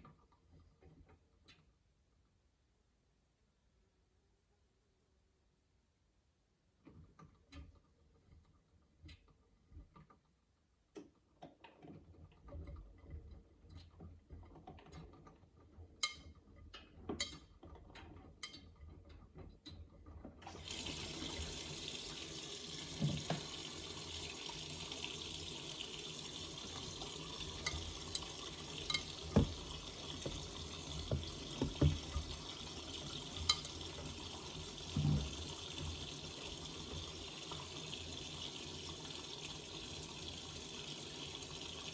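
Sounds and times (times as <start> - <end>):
water rushing into washing machine: 20.4 - 41.9
soft thumps: 29.3 - 32.4.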